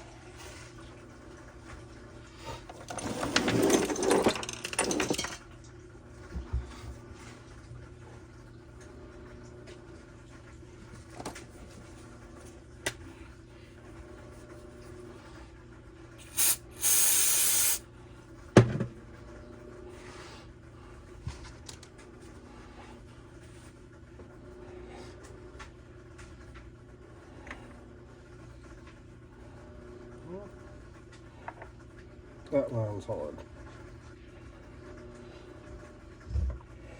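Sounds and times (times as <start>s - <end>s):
hissing sprays: 16.2s - 17.8s.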